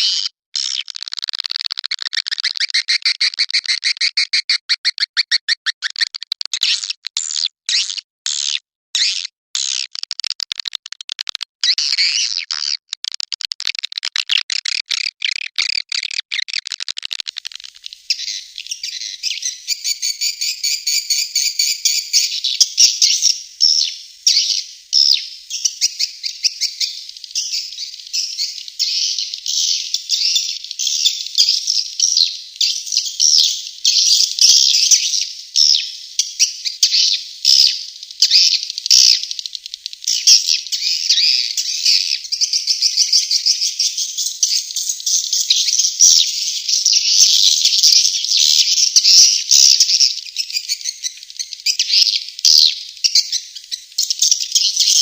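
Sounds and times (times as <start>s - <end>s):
high chirps and twitters: 0.0s - 55.0s
dry clicks: 9.6s - 12.0s, 12.6s - 17.8s.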